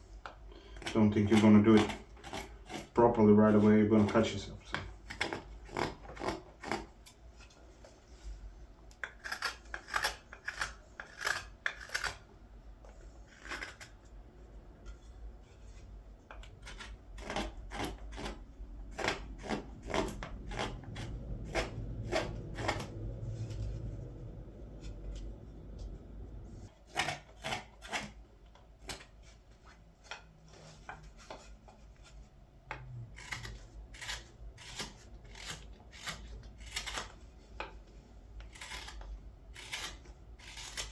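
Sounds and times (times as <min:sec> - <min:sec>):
knife carving wood: 0:00.2 - 0:07.2, 0:08.9 - 0:14.2, 0:15.7 - 0:23.3, 0:26.7 - 0:29.4, 0:33.0 - 0:40.9.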